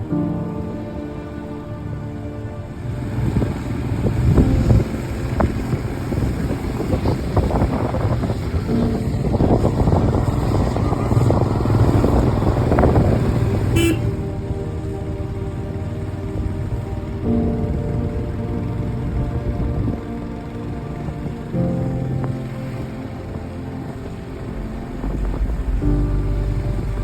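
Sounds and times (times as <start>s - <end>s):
faint background music: 0.0s - 27.0s
motorcycle engine rumble: 2.8s - 21.4s
horn toot: 13.5s - 14.4s.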